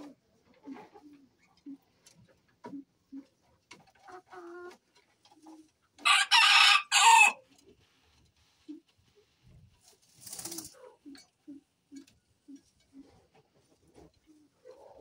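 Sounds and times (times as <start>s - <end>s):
rooster crowing: 6.0s - 7.4s.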